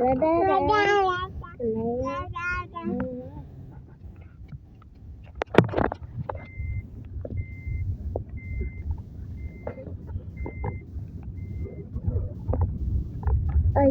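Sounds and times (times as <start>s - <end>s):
low engine rumble: 0.0s - 13.9s
truck reversing alarm beeping: 6.3s - 13.9s.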